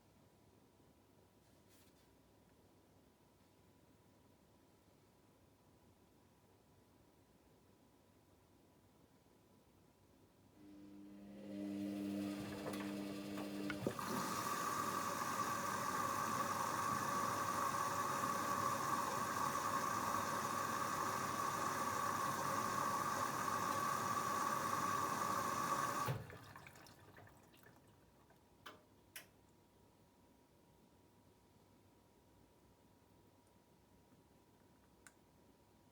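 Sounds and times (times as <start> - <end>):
water rushing in: 12.3 - 27.9.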